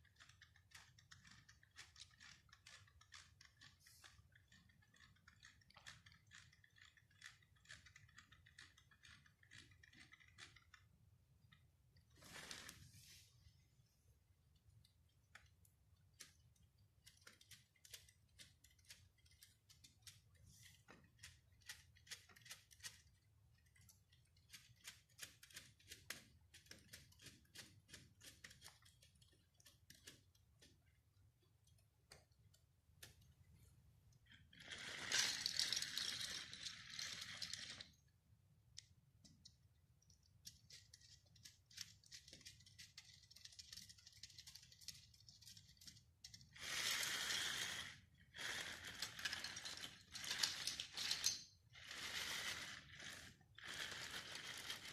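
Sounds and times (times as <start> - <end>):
whirring rattling mechanism: 0.0 - 13.0, 14.6 - 32.4, 33.0 - 38.1, 38.8 - 54.9
plastic parts clicking: 14.8 - 33.4, 38.8 - 46.5, 48.5 - 51.5.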